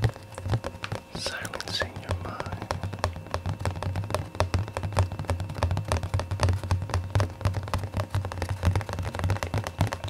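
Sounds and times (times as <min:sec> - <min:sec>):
fast light tapping: 0:00.0 - 0:10.0
steady low hum: 0:00.0 - 0:10.0.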